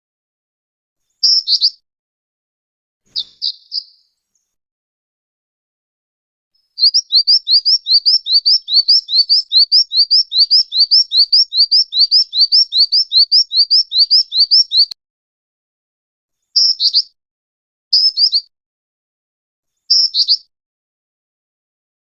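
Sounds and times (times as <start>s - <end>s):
bird high rising chirps: 1.2s - 1.8s, 3.1s - 4.2s, 6.6s - 15.0s, 16.6s - 17.2s, 18.0s - 18.5s, 19.9s - 20.5s.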